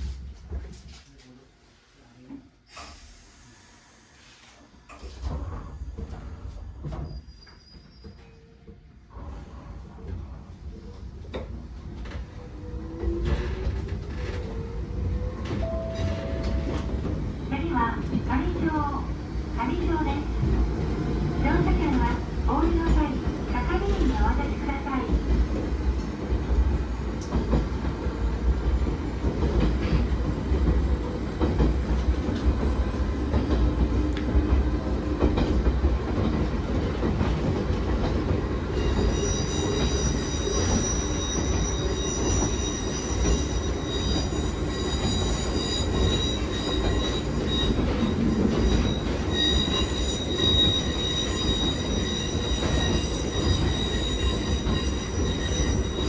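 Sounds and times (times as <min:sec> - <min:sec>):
high-pitched wheel squeal: 0:07.0 - 0:08.6, 0:38.8 - 0:56.0
electric train rumbling: 0:08.9 - 0:56.0.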